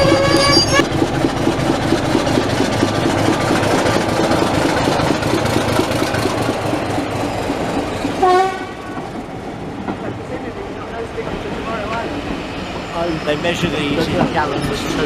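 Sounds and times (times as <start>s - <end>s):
train hoot: 0.0s - 0.8s, 8.2s - 9.1s
train rumbling: 0.0s - 15.0s.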